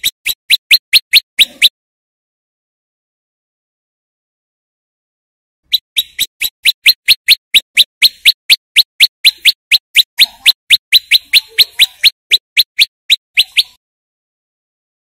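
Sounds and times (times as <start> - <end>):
songbird chip notes: 5.7 - 13.8.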